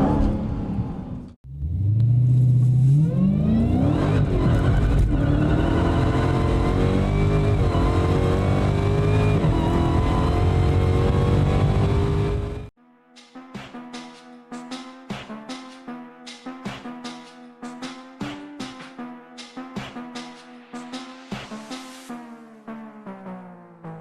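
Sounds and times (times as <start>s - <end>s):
car engine accelerating hard: 0.0s - 12.7s.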